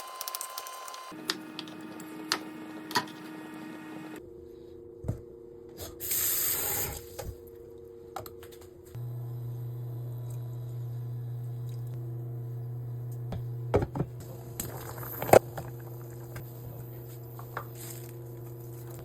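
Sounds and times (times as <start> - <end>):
steady low hum: 7.1 - 19.0.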